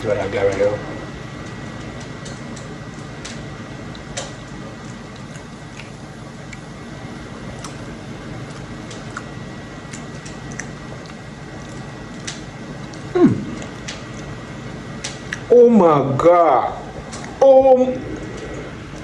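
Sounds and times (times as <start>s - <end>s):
low background hum: 0.0s - 19.0s
wet mouth clicks chewing: 4.8s - 6.7s, 7.5s - 7.8s, 8.4s - 14.3s, 15.1s - 15.5s.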